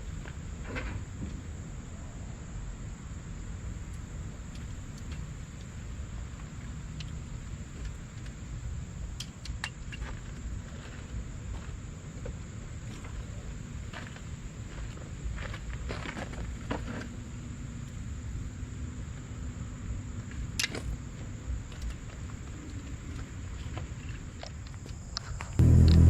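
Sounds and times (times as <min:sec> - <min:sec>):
crickets droning: 0:00.0 - 0:26.0
low constant rumble: 0:25.6 - 0:26.0.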